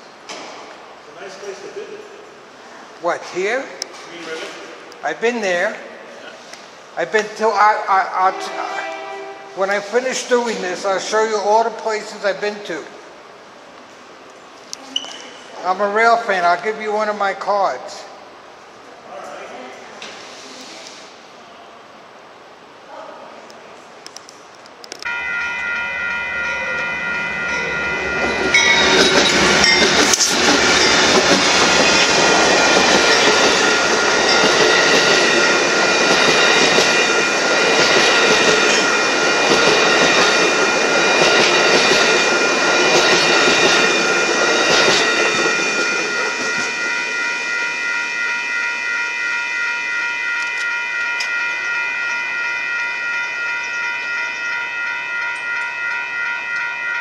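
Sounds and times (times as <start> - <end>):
steady high ringing tones: 24.9 - 57.0
train wheels clattering over rails: 26.8 - 46.9.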